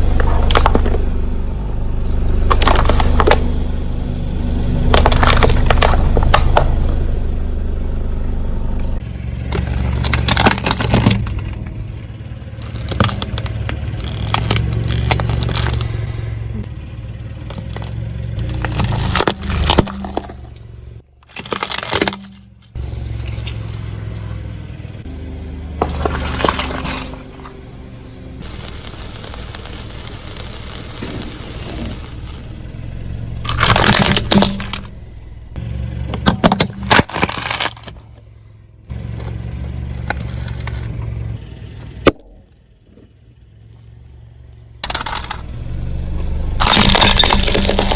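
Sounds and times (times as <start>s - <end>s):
tyres crushing objects: 0.0s - 1.2s, 2.3s - 3.8s, 4.8s - 7.0s, 9.3s - 16.7s, 17.3s - 24.5s, 25.7s - 27.7s, 28.4s - 38.4s, 40.0s - 41.2s, 44.8s - 47.9s
car rumbling: 0.0s - 47.9s.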